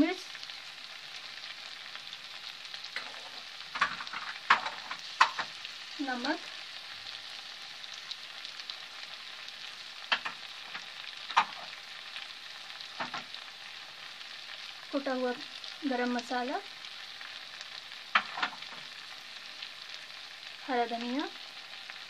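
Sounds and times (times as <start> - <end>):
vegetables sizzling in hot oil: 0.0 - 22.0
sharp clicks and knocks: 3.0 - 5.5, 10.1 - 11.7, 13.0 - 13.3, 18.2 - 18.8.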